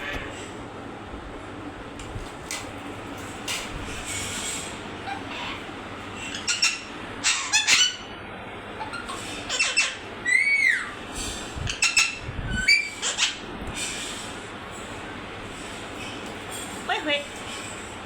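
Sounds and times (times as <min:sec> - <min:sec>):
parrot squawking: 0:05.0 - 0:08.1, 0:08.7 - 0:11.0, 0:11.6 - 0:13.5.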